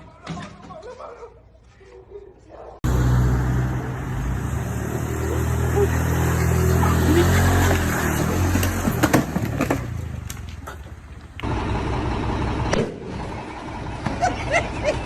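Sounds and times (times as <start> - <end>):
road traffic: 2.8 - 15.0.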